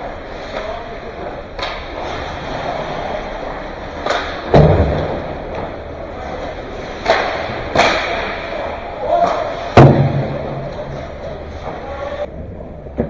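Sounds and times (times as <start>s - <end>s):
stick and puck clacks: 0.0s - 12.1s
heavy thud: 4.4s - 5.8s, 9.7s - 10.9s.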